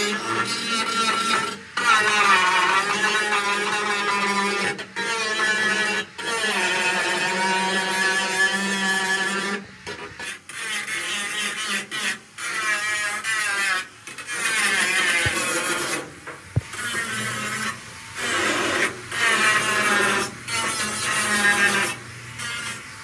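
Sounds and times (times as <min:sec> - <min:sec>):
rasping on metal: 0:00.0 - 0:22.9.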